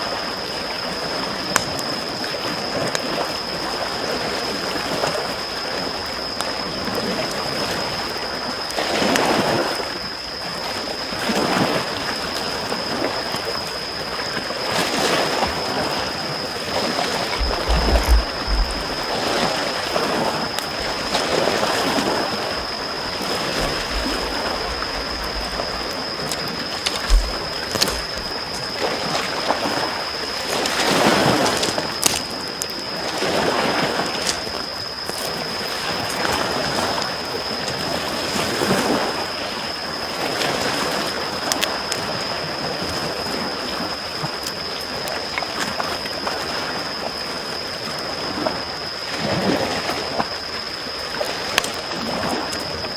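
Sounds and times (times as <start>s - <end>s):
campfire crackling: 1.2s - 4.0s, 16.5s - 38.2s, 41.0s - 42.2s, 51.4s - 51.9s
campfire pops: 1.5s - 2.0s, 17.3s - 19.2s, 23.5s - 28.8s, 30.5s - 33.4s, 41.4s - 42.0s
small waves washing on shore: 14.4s - 46.6s.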